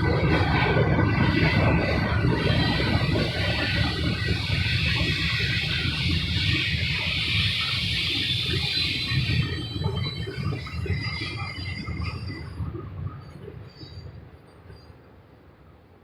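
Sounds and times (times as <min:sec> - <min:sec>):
train rumble with wheel clatter: 0:00.0 - 0:16.0.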